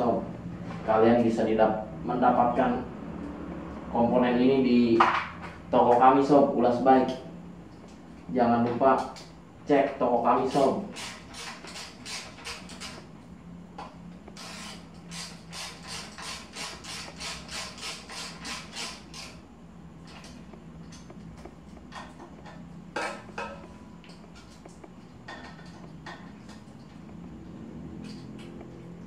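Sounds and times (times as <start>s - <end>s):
ratchet wrench clicking: 10.5s - 13.0s, 14.3s - 19.4s.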